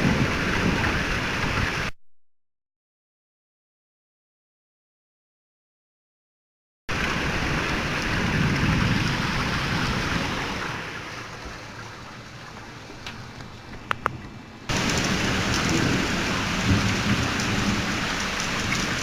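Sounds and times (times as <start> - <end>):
heavy rain: 0.0 - 1.9, 6.9 - 19.0
thunder rumbling: 0.0 - 1.9, 6.9 - 11.4, 14.0 - 19.0.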